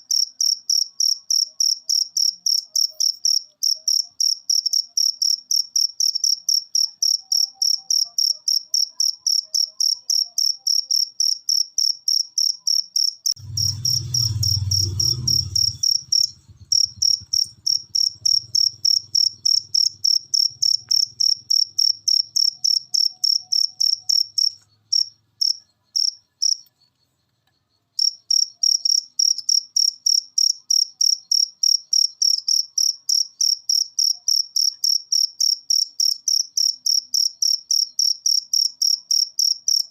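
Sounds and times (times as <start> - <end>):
cricket chirping: 0.0 - 39.9
low rumble: 13.4 - 20.0.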